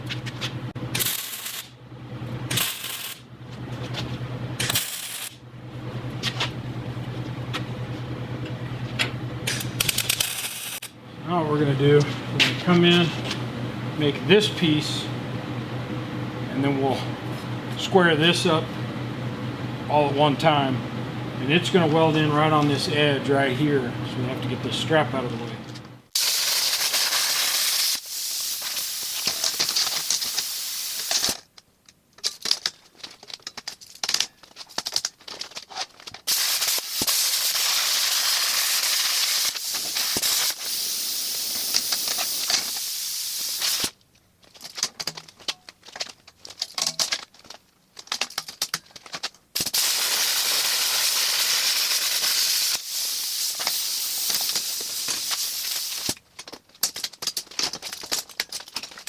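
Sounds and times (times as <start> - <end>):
crackles and clicks: 25.8 - 59.0
cutting torch hissing: 26.2 - 31.3, 36.3 - 43.9, 49.6 - 56.2.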